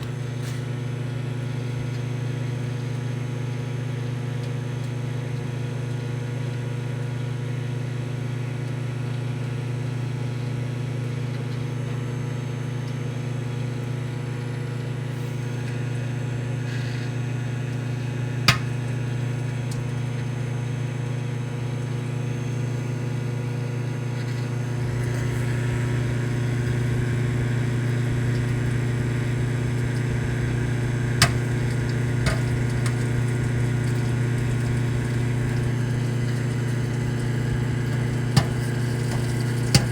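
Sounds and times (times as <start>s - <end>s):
microwave oven humming: 0.0s - 39.9s
popcorn kernels popping: 18.2s - 20.2s, 24.6s - 39.9s.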